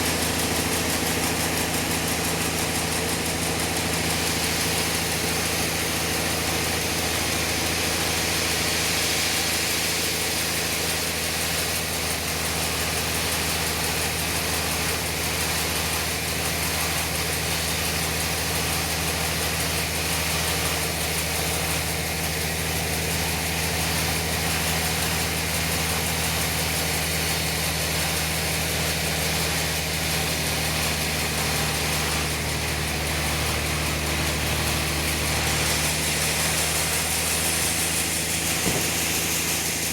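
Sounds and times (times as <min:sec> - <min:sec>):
low engine drone: 0:31.4 - 0:39.9.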